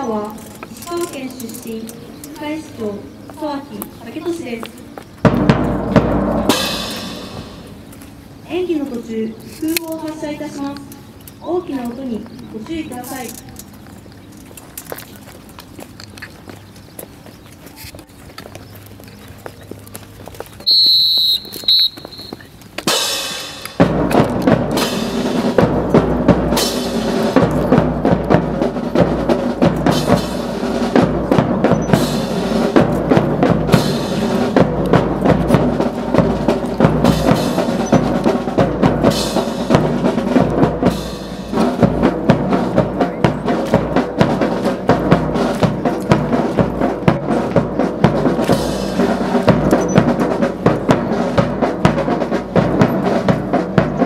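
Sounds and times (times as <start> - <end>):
marching snare and bass drums: 2.6 - 9.1, 20.6 - 54.0
band accompaniment: 4.2 - 8.4, 20.7 - 54.0.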